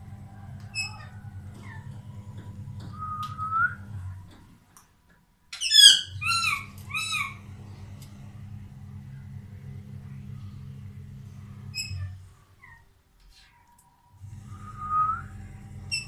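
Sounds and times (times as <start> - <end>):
parakeet whistling and squawking: 5.6 - 7.4.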